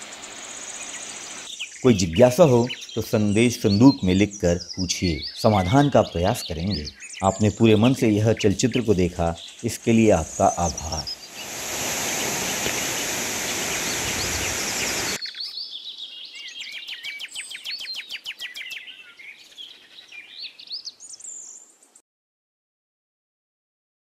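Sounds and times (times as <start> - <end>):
birds chirping: 0.0 - 21.7
steady rushing noise: 11.0 - 15.2.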